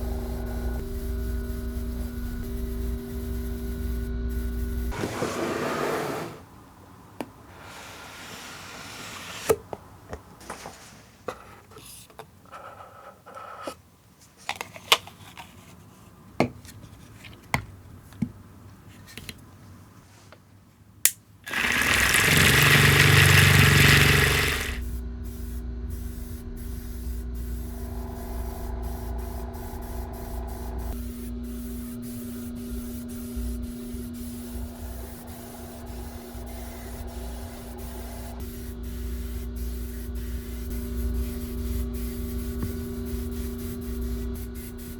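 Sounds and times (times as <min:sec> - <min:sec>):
steady machine hum: 0:00.0 - 0:05.0, 0:21.4 - 0:44.6
spray paint hissing: 0:21.5 - 0:44.9.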